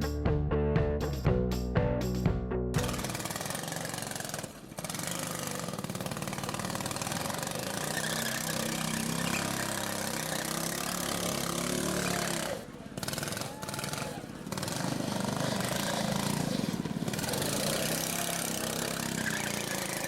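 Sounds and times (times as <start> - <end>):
outdoor background noise: 2.1 - 20.0
car engine idling: 2.8 - 20.0.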